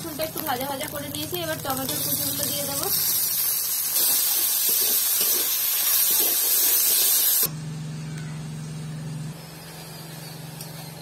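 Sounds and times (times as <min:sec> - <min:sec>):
tomatoes sizzling in hot oil: 0:00.0 - 0:07.5.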